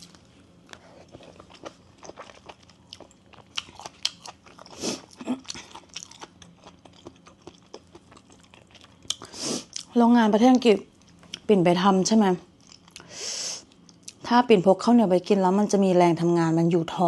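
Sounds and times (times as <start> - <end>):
person chewing crunchy food: 0.0 - 9.9, 12.5 - 14.2.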